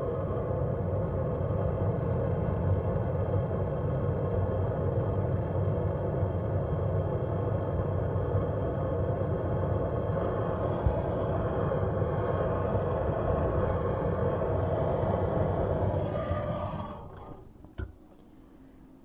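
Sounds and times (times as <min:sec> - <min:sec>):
gas torch flame rushing: 0:08.4 - 0:17.9.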